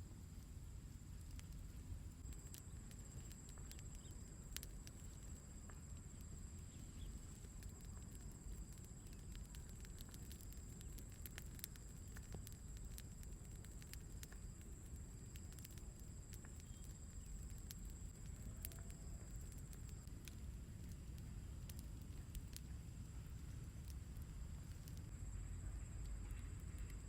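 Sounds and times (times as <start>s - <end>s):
small crackles and clicks: 0.0s - 25.1s, 26.0s - 27.0s.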